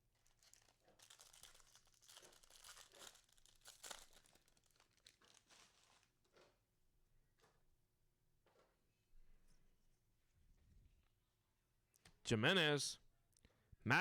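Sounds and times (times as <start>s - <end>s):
foil wrapper tearing and crinkling: 0.1s - 6.2s.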